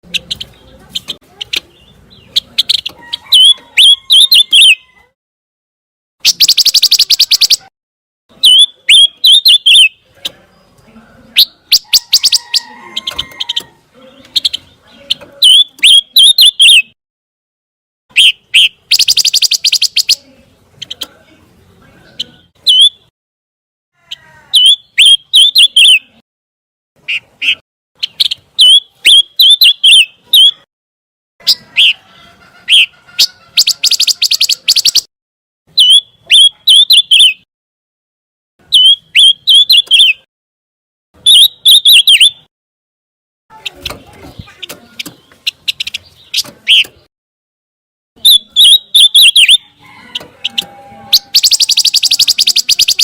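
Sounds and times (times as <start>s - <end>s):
bird chattering and whistling: 0.0s - 4.9s, 6.2s - 7.7s, 8.3s - 10.3s, 11.3s - 17.0s, 18.1s - 21.2s, 22.1s - 23.1s, 24.5s - 26.2s, 27.0s - 30.7s, 31.4s - 35.1s, 35.7s - 37.5s, 38.6s - 40.3s, 41.2s - 42.5s, 43.5s - 47.1s, 48.2s - 53.0s.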